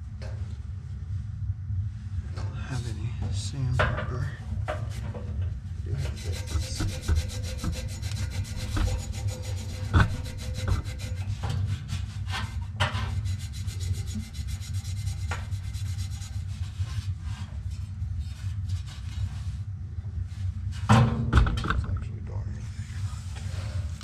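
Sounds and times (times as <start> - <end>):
steady low hum: 0.0 - 24.0
hand rubbing abrasive on part: 5.8 - 19.6.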